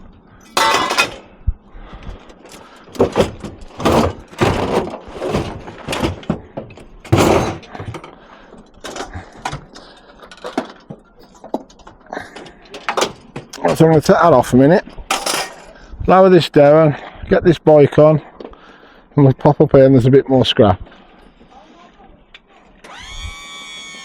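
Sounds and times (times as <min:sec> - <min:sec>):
scrap metal clunking on a truck: 0:00.5 - 0:01.4, 0:02.2 - 0:14.1.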